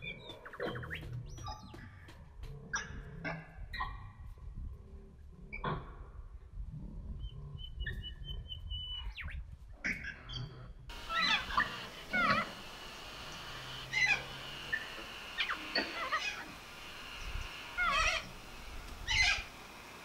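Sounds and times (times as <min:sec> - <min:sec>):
wavering high whistle: 0:10.9 - 0:19.6
birds chirping: 0:10.9 - 0:20.0
steady hiss: 0:10.9 - 0:20.0.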